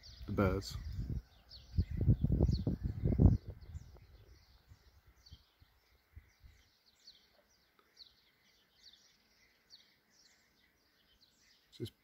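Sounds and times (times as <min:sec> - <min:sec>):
wind rumble on microphone: 0:00.0 - 0:06.6
small birds chirping: 0:00.0 - 0:12.0.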